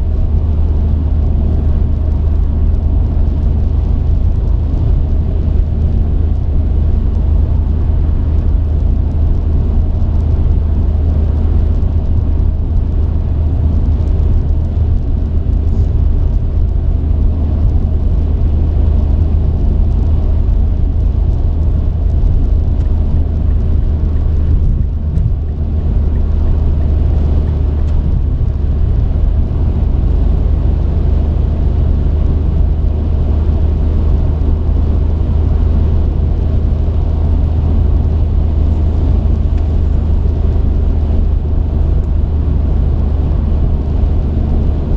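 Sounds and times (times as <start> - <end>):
truck engine and tyres droning: 0.0 - 44.9.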